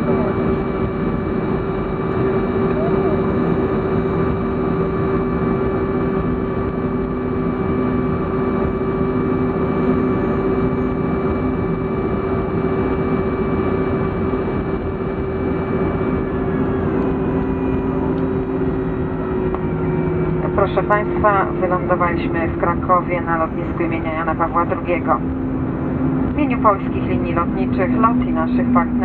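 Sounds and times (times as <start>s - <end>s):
airliner cabin engine drone: 0.0s - 29.0s
engines winding down: 12.6s - 29.0s.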